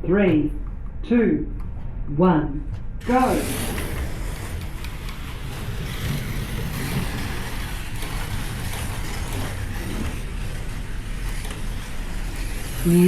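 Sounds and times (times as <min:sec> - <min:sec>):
slot cars whirring: 0:03.0 - 0:13.0.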